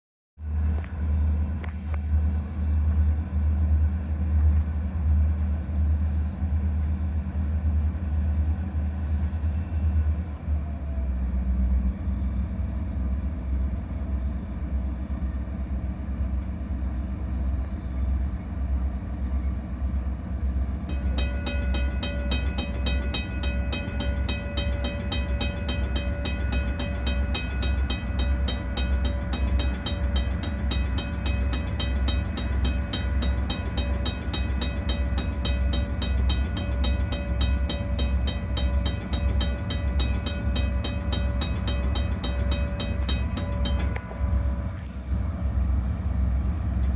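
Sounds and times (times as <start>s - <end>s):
diesel locomotive engines rumbling: 0.4s - 46.9s
bell ringing: 20.9s - 44.6s.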